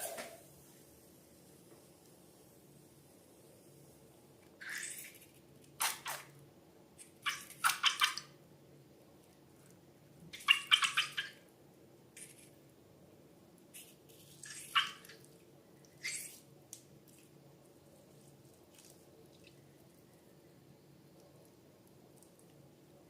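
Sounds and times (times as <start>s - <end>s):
wet slime squelches: 13.7s - 20.2s.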